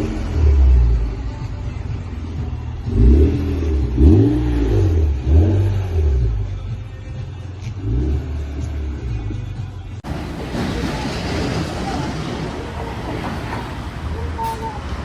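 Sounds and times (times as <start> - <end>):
car engine revving: 0.0 - 6.8, 7.6 - 9.4, 10.0 - 15.0
car engine idling: 9.9 - 15.0.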